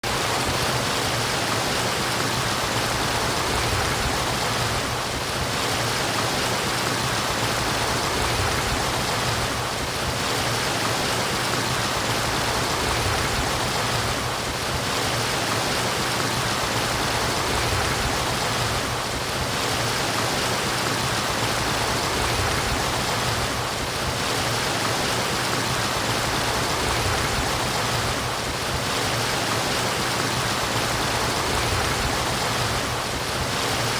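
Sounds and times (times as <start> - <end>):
running water rushing: 0.0 - 33.9.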